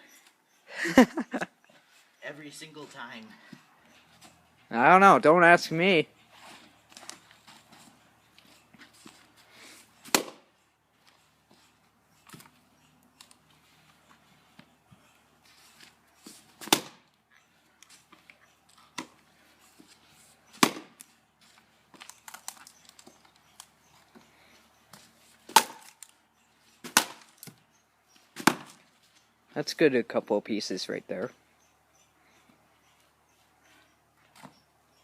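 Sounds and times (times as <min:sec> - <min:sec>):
axe splitting firewood: 0:10.0 - 0:10.5, 0:15.8 - 0:17.1, 0:20.5 - 0:21.1, 0:24.9 - 0:26.1, 0:26.8 - 0:27.6, 0:28.3 - 0:28.8.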